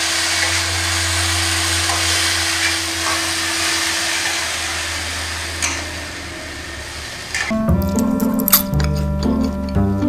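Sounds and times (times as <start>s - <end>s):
stir-frying sizzle in a wok: 0.0s - 7.5s.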